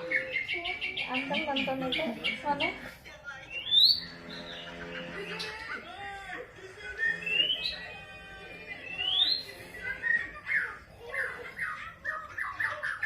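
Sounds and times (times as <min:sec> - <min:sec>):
bird chirps: 0:03.5 - 0:05.6, 0:08.8 - 0:10.7.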